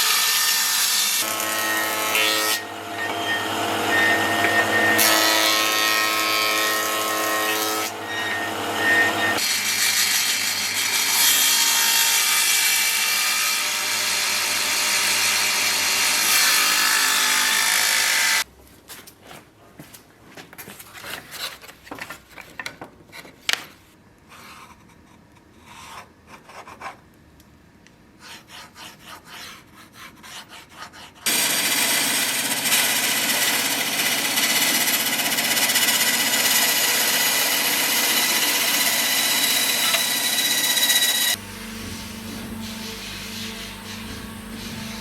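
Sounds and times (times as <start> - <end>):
power tool whining: 31.3 - 45.0
file scraping on wood: 37.9 - 45.0.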